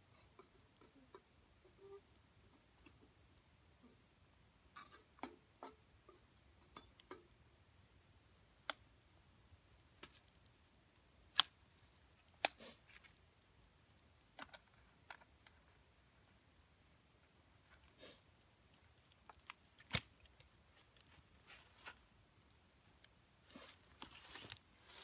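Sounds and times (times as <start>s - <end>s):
twig fire crackling and popping: 6.4s - 23.2s, 23.8s - 25.0s.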